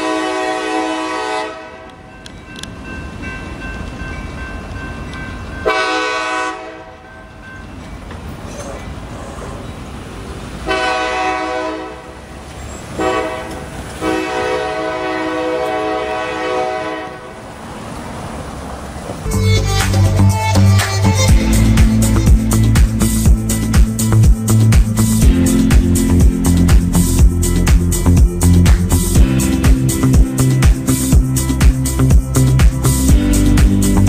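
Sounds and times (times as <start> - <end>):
locomotive horn blasts: 0.0 - 2.2, 5.6 - 7.1, 10.6 - 12.3, 13.0 - 17.4, 19.2 - 23.1
train rumbling: 0.0 - 34.0.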